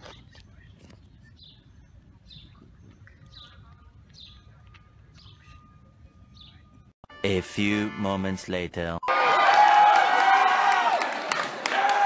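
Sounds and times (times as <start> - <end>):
bird chirping: 0.0 - 6.9.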